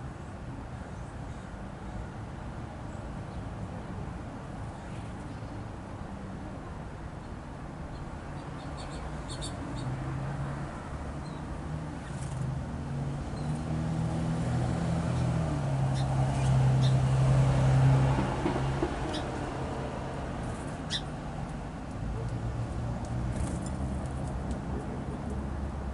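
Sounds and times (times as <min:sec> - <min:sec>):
distant vehicle engine hum: 0:04.3 - 0:25.9
songbirds chirping: 0:07.2 - 0:10.0, 0:20.8 - 0:21.1.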